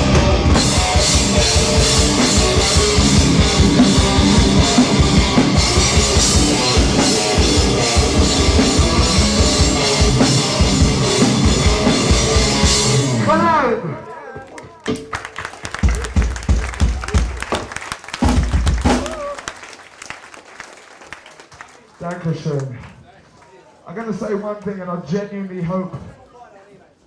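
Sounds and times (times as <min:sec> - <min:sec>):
hardcore band playing live: 0:00.0 - 0:13.8, 0:14.8 - 0:19.4.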